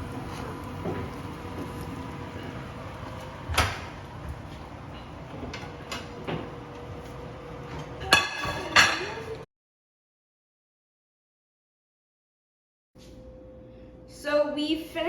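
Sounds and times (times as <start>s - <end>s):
utensils knocking on cooking pan: 8.0s - 9.3s.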